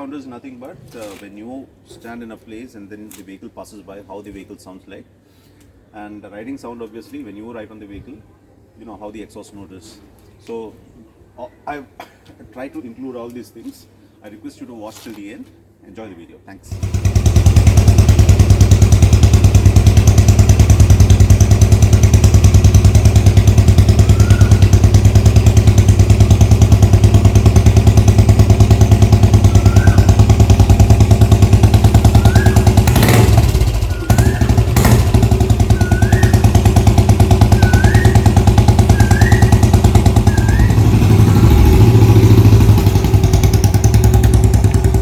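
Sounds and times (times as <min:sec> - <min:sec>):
motorcycle engine idling: 0:16.7 - 0:45.0.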